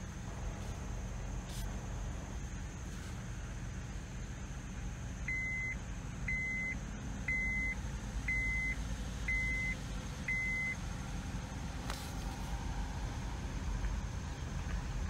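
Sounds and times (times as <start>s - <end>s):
vehicle low rumble: 0.0s - 15.0s
car warning chime beeping: 5.3s - 10.8s.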